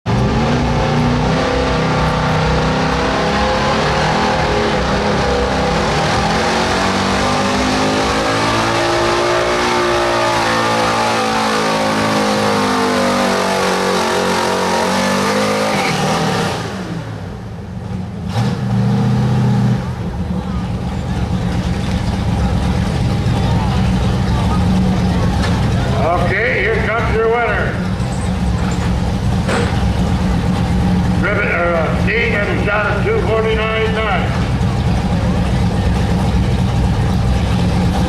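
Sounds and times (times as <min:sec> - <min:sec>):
pickup engine revving hard: 0:00.1 - 0:17.4, 0:18.2 - 0:20.0.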